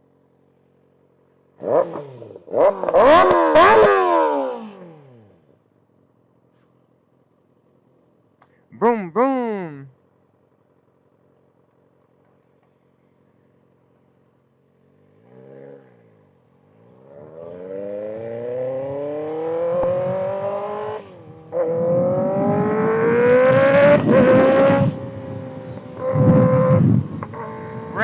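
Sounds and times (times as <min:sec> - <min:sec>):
motorcycle engine revving and accelerating: 0:01.3 - 0:05.6, 0:14.6 - 0:28.0.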